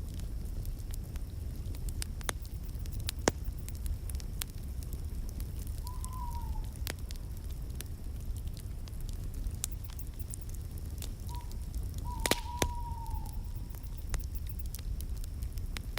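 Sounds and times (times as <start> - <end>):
fire low rumble: 0.0 - 15.9
wood fire crackling and popping: 0.0 - 15.9
faint whistling tone: 5.8 - 6.8, 11.2 - 14.6.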